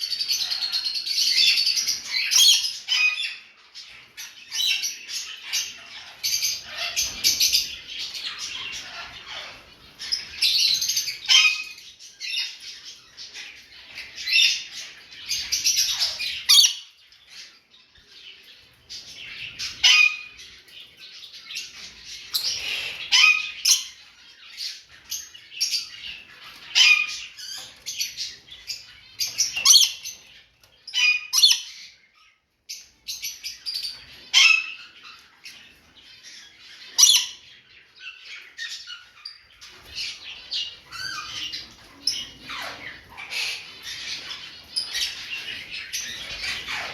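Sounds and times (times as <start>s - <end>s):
lovebirds chirping and squawking: 0.0s - 46.9s.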